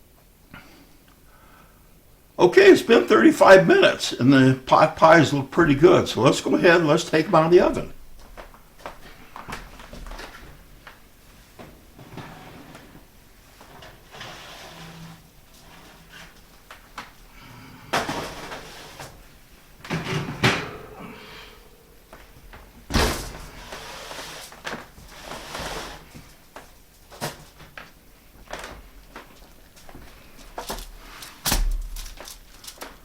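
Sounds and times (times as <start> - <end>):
baking dishes clattering: 19.9 - 22.5
oven door bang: 20.0 - 22.0, 22.9 - 23.7, 31.5 - 32.1.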